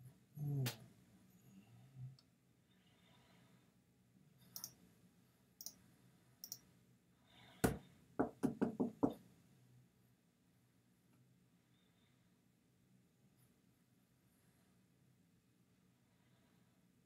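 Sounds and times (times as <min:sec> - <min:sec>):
computer mouse clicks: 0:04.5 - 0:04.8, 0:06.4 - 0:06.7.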